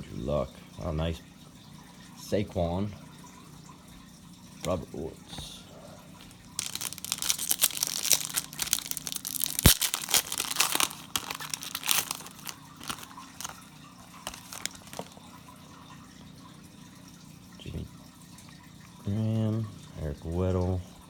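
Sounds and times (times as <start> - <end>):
plastic wrapper tearing and crinkling: 6.5 - 15.2.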